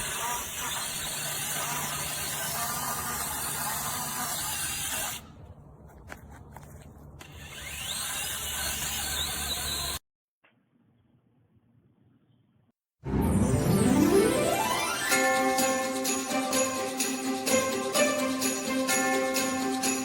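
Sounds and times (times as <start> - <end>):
mini chainsaw running: 0.0 - 5.2, 7.2 - 10.0.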